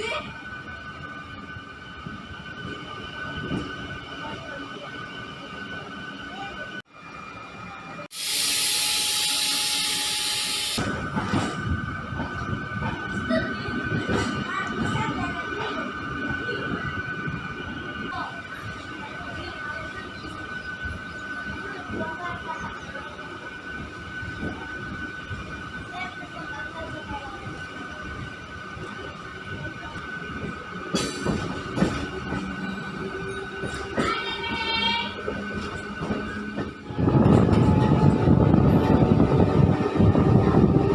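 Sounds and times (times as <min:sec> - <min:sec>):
electric train running: 0:08.2 - 0:40.9.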